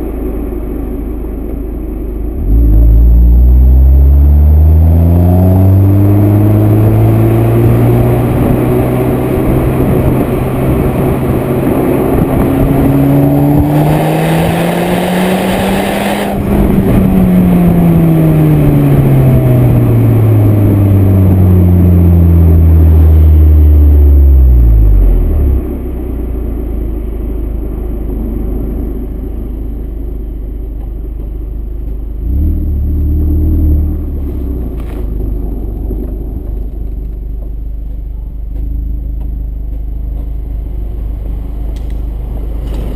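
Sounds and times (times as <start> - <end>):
car engine revving: 2.2 - 27.1, 32.2 - 37.1.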